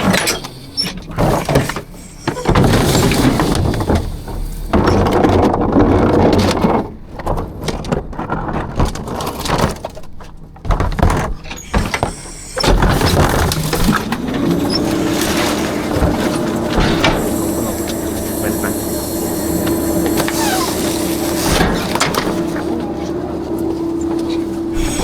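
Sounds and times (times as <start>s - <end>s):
machinery whine: 0.0s - 5.3s, 11.6s - 25.0s
garbage truck machinery clanking: 0.0s - 25.0s.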